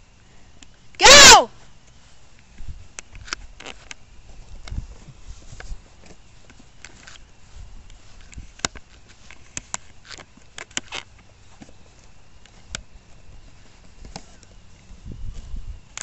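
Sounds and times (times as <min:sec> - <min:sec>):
twigs cracking: 0:07.9 - 0:11.8.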